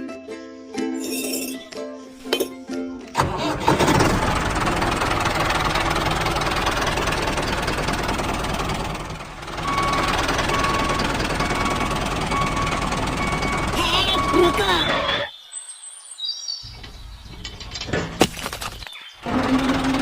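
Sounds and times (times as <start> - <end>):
small motor rattling: 19.2 - 20.0.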